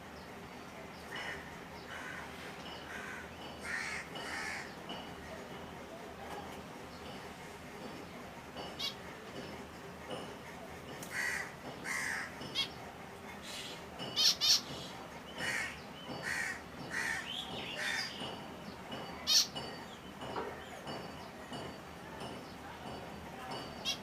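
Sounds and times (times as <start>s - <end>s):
finches calling: 13.5s - 20.9s.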